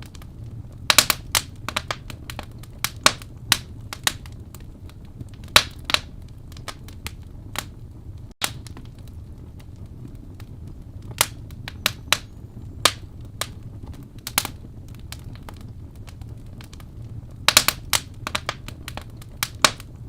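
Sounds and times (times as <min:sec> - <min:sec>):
low rumble of flames: 0:00.0 - 0:20.0
wood fire crackling: 0:00.0 - 0:20.0.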